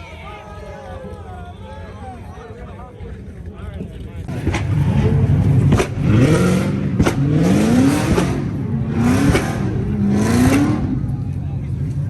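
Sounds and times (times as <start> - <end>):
car engine revving hard: 4.4 - 11.2.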